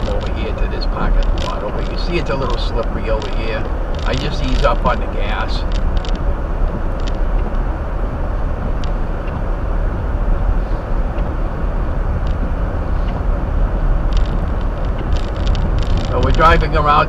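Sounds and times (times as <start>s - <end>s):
low car engine hum: 0.0s - 17.0s
road and tyre noise: 0.0s - 17.0s.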